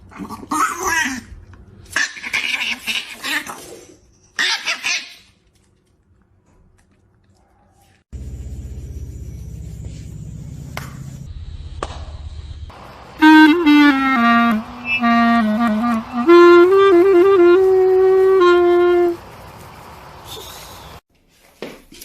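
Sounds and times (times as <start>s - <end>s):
low hum: 8.2s - 20.6s
clarinet-like wind instrument playing: 13.2s - 19.2s.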